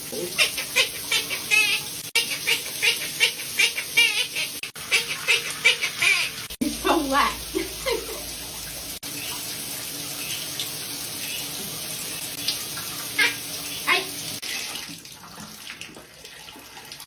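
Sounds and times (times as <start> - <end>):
water running from tap: 0.0 - 17.0.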